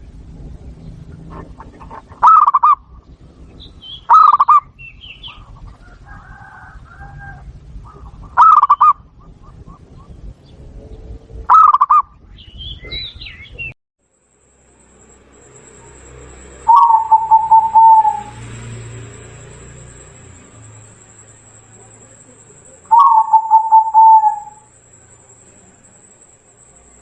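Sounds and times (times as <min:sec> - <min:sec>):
dove cooing: 0:01.2 - 0:02.9, 0:04.0 - 0:10.2, 0:11.5 - 0:12.0, 0:16.0 - 0:20.5, 0:21.1 - 0:25.8
high bird chirps: 0:01.6 - 0:05.9, 0:07.8 - 0:10.2, 0:11.5 - 0:13.8, 0:15.4 - 0:27.0.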